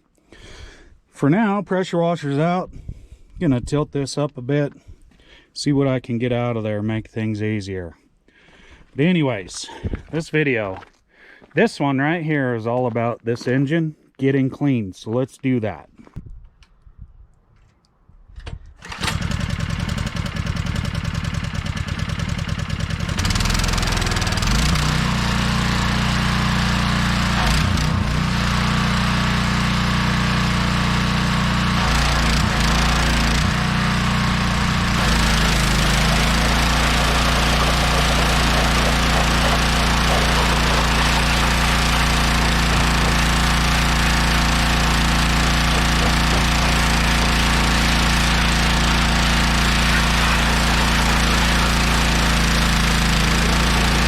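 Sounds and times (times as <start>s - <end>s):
pressure washer engine running: 18.9s - 54.0s.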